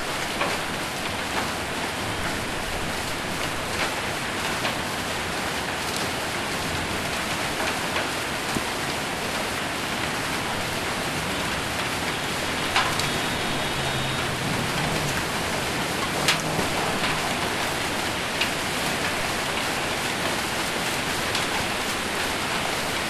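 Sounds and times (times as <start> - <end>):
heavy rain on metal roof: 0.0 - 23.0
hailstones ticking: 11.3 - 23.0.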